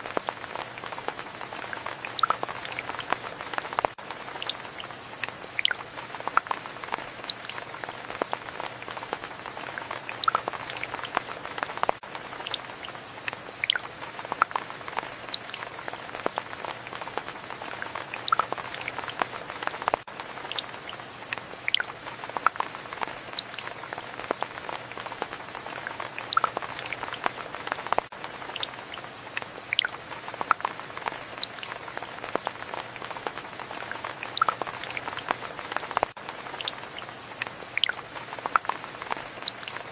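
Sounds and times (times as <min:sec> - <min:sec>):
rain hissing: 0:00.0 - 0:39.9
raindrops ticking close by: 0:00.0 - 0:39.9.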